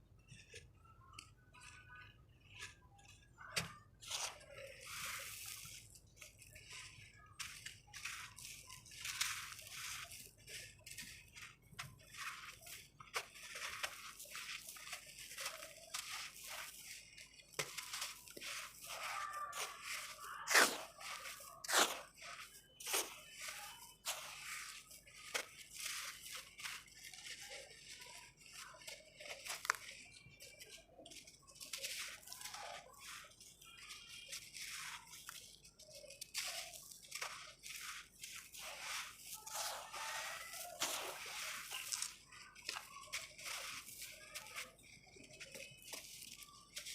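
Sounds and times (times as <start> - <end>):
dry sand-cement crumbling: 0.2 - 46.9.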